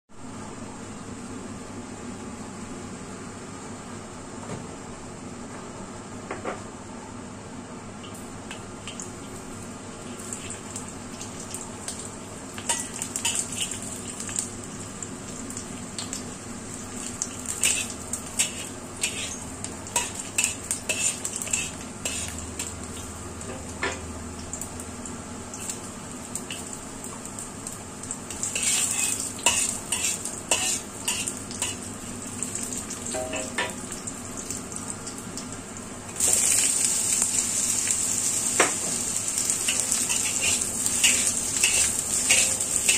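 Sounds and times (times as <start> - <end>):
loud sizzle: 7.6 - 42.9
garlic frying in hot oil: 8.0 - 42.9
metal spatula scraping a wok: 17.6 - 19.4, 20.0 - 22.4, 28.6 - 31.8, 39.7 - 42.9.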